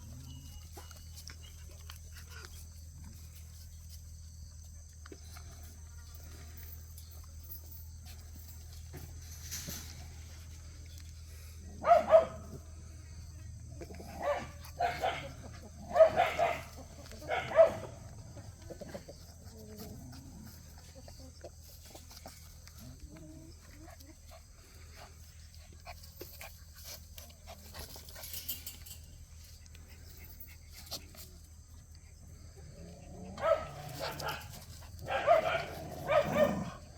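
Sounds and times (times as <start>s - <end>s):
dogs barking: 11.8s - 12.6s, 14.0s - 18.2s, 33.2s - 36.9s.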